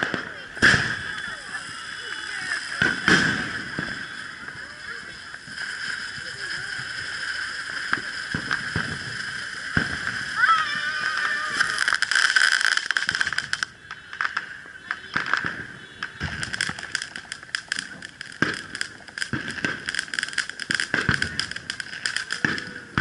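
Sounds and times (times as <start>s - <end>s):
fireworks crackling and popping: 0.0s - 23.0s
steady hiss: 1.0s - 13.7s.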